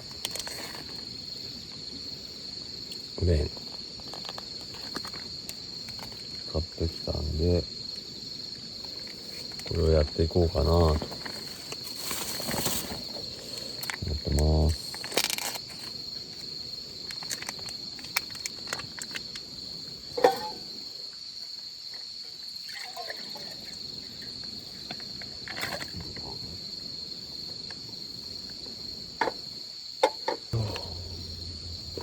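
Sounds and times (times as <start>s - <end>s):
crickets chirping: 0.0s - 32.0s
low hum: 30.6s - 32.0s.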